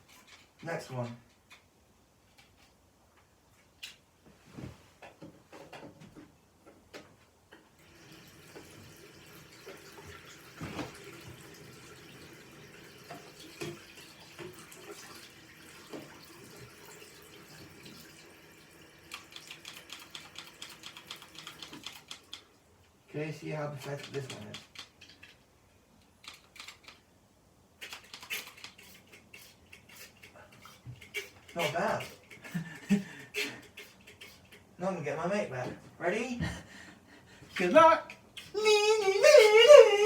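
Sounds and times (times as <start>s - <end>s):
tap running into sink: 8.0s - 12.2s, 12.9s - 18.1s.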